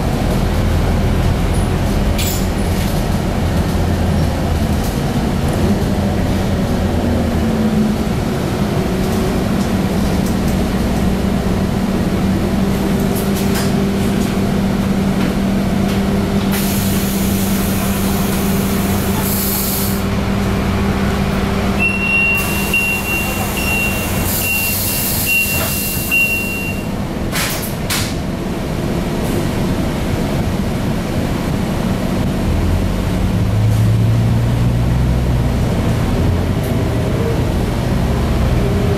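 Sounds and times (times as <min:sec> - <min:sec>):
bus engine running: 0:00.0 - 0:38.9
air brake hiss: 0:16.5 - 0:20.1, 0:22.4 - 0:26.8
short high beeps: 0:21.8 - 0:26.9.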